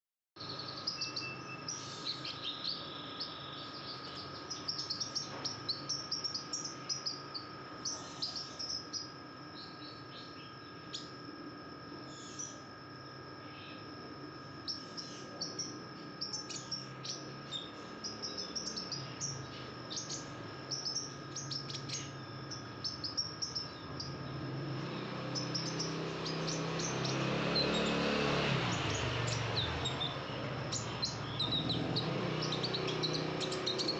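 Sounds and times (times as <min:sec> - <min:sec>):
steady faint whine: 0:00.4 - 0:33.9
sunbird high chirps: 0:00.4 - 0:33.9.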